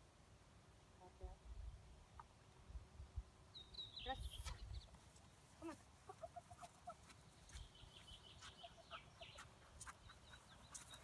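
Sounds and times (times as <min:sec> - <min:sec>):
distant birds chirping: 0:03.3 - 0:11.0.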